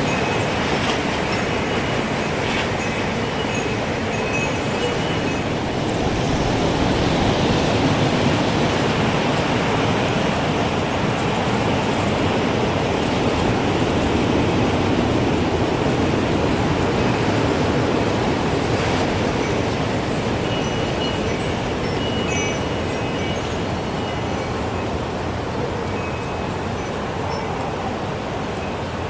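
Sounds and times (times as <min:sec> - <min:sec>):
strong gusting wind: 0:00.0 - 0:29.0.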